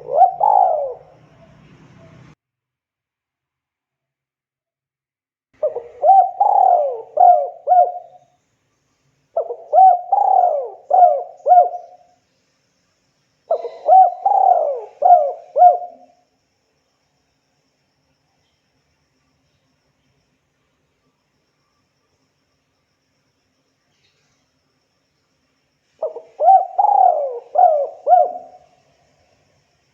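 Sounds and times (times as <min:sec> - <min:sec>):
dove cooing: 0:00.0 - 0:02.3, 0:05.6 - 0:08.2, 0:09.4 - 0:12.1, 0:13.5 - 0:16.2, 0:26.0 - 0:28.9.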